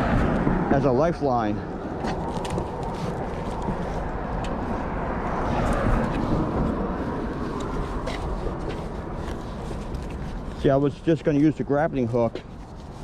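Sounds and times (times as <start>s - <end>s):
vehicle passing: 0.0s - 10.4s
road traffic rumble: 0.0s - 13.0s.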